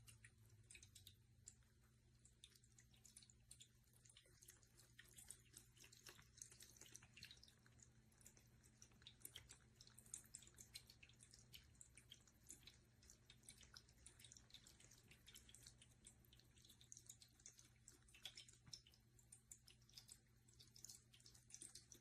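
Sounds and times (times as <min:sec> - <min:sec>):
faint low hum: 0:00.0 - 0:22.0
water trickling and dripping: 0:00.0 - 0:22.0.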